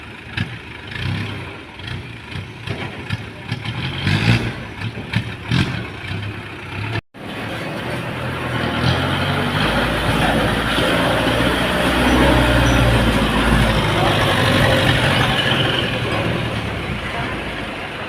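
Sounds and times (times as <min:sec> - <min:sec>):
truck diesel engine running: 0:00.0 - 0:18.0.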